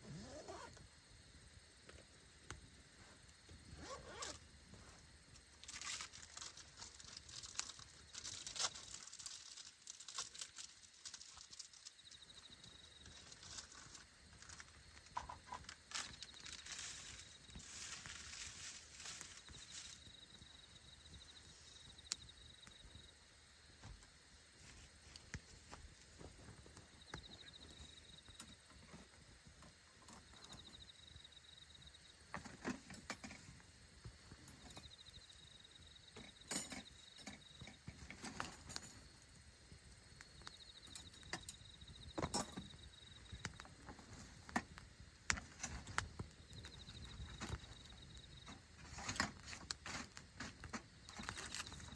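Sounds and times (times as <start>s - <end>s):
campfire crackling and popping: 5.3s - 11.9s, 44.6s - 48.3s.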